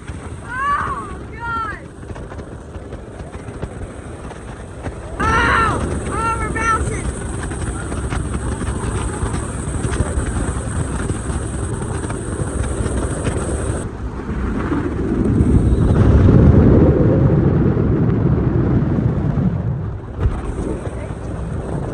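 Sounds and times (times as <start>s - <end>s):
boat motor running: 0.0s - 14.0s
wind rumble on microphone: 0.0s - 21.9s.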